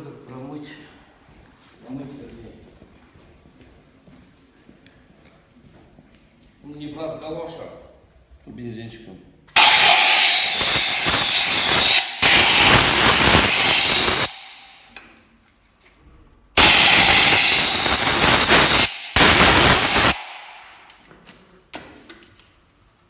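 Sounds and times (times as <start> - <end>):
compressed-air blow gun hissing: 9.6 - 14.9, 16.6 - 20.8.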